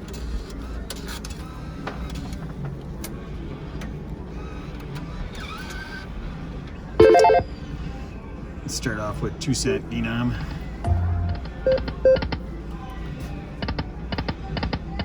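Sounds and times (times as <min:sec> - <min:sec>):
electronic slot machine tones: 0:07.0 - 0:07.5.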